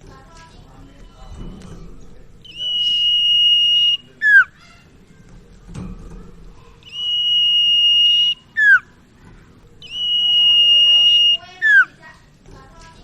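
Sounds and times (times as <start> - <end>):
bird whistling song: 2.4 - 4.7, 6.8 - 9.0, 9.8 - 12.0.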